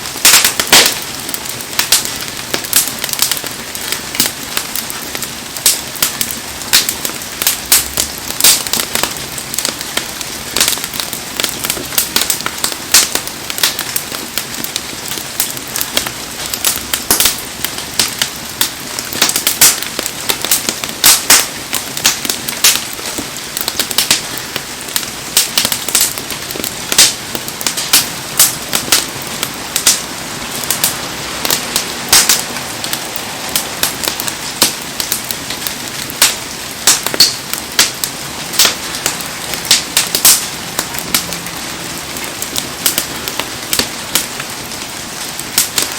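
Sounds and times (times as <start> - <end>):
campfire crackling and popping: 0.0 - 45.9
heavy rain hissing: 21.0 - 45.7.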